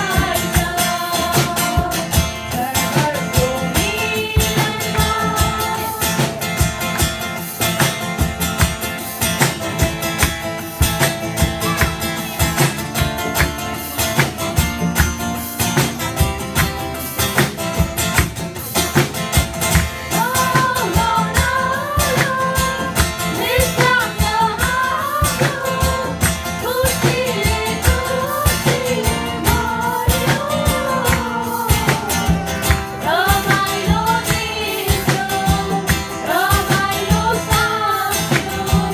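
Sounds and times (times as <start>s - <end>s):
person singing: 0.0s - 6.6s, 20.1s - 38.9s
guitar music over a steady beat: 0.0s - 38.9s.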